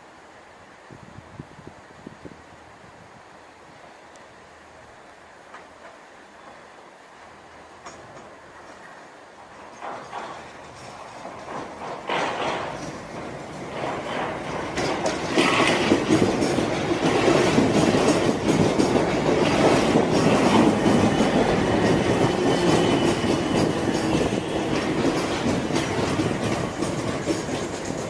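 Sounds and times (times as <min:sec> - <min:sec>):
train wheels clattering: 0:07.7 - 0:28.0
faint high wheel squeal: 0:20.9 - 0:25.0.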